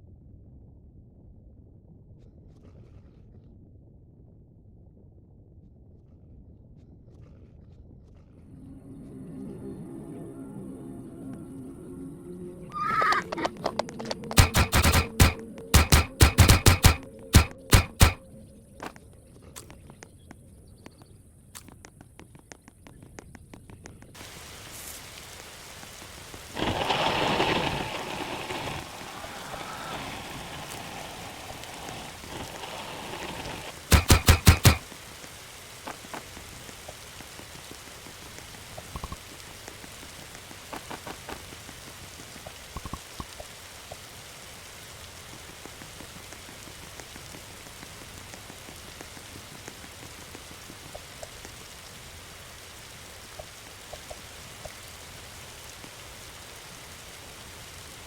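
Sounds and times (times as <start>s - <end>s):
rushing noise: 8.5s - 18.8s, 24.2s - 36.4s
campfire crackling and hissing: 11.2s - 58.0s.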